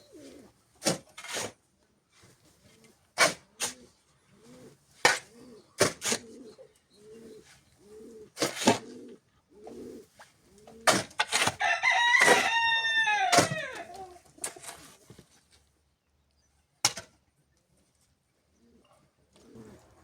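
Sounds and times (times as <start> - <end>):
doves cooing: 0.0 - 0.6, 3.6 - 11.1, 13.5 - 15.0, 18.5 - 20.0
rooster crowing: 11.6 - 14.0.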